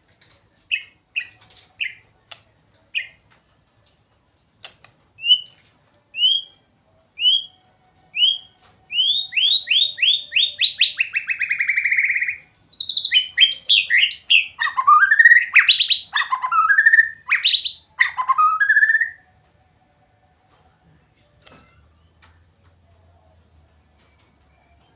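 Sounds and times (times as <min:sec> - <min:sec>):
bird singing whistled phrases: 0:05.2 - 0:05.6, 0:06.2 - 0:06.6, 0:07.2 - 0:19.2.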